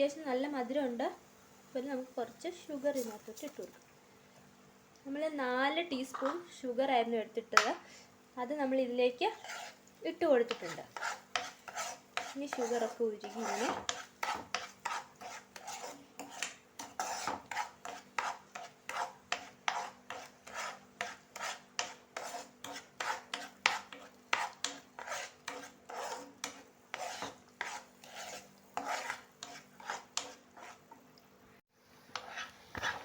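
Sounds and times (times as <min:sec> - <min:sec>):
spatula scraping a pan: 0:09.1 - 0:31.1, 0:32.0 - 0:33.0.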